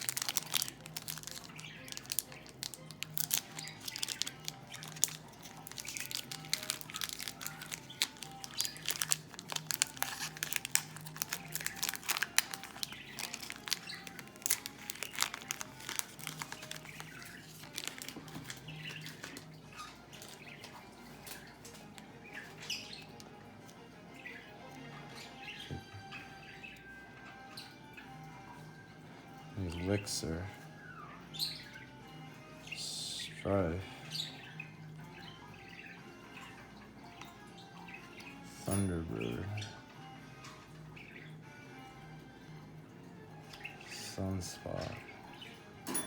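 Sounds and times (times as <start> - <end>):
wrappers tearing and crinkling: 0.0 - 19.4.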